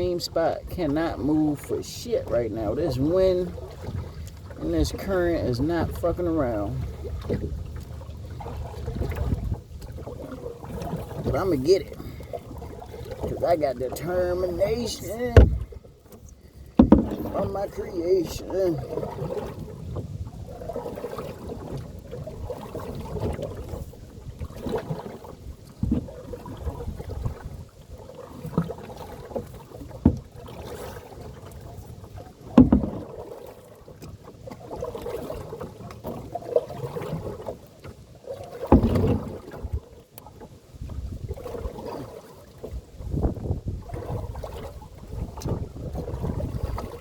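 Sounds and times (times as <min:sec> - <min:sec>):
wind buffeting microphone: 0:00.0 - 0:28.0, 0:40.8 - 0:42.0, 0:42.7 - 0:47.0
paddle splashing in water: 0:00.0 - 0:47.0
sharp knocks: 0:16.8 - 0:17.4.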